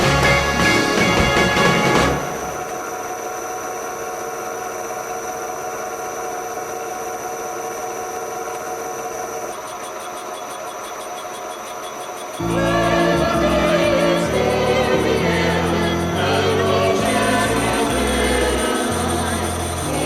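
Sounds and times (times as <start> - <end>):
high machine whine: 0.0 - 20.0
machine humming: 0.0 - 20.0.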